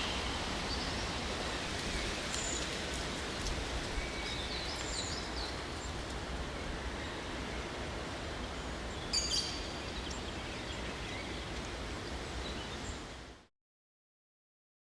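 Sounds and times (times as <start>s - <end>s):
small birds chirping: 0.0s - 6.1s
steady rushing hiss: 0.0s - 6.6s.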